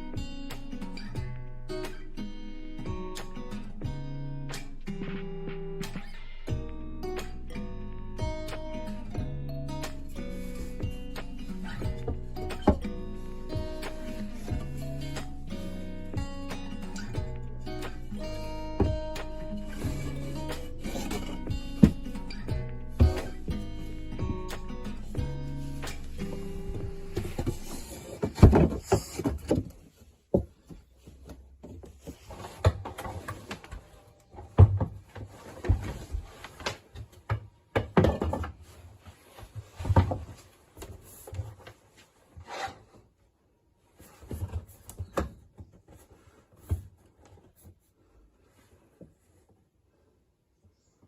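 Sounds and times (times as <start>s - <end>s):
wooden boards knocking and scraping: 18.8s - 22.3s, 27.1s - 33.8s, 34.4s - 38.7s.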